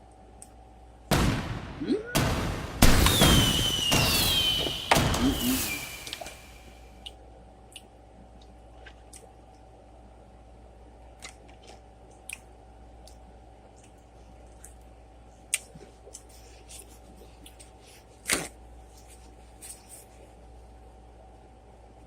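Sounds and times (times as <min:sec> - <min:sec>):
chewing clicks and crunches: 0:07.0 - 0:09.7, 0:11.0 - 0:18.6.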